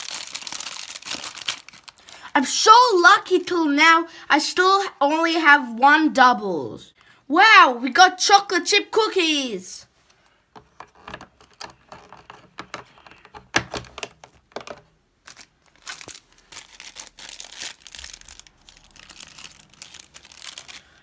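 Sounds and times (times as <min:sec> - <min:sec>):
plastic wrapper crinkling and tearing: 0:00.0 - 0:02.3, 0:11.0 - 0:21.0.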